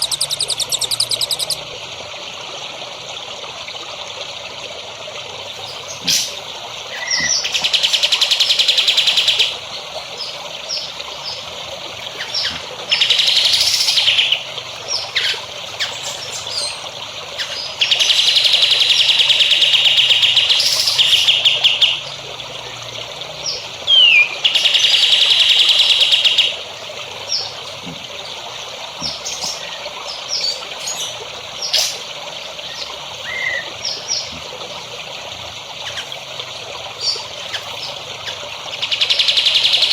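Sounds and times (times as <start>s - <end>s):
songbird trilling and chirping: 0.0s - 1.6s, 12.1s - 16.8s, 23.5s - 26.6s
running water trickling: 0.0s - 39.9s.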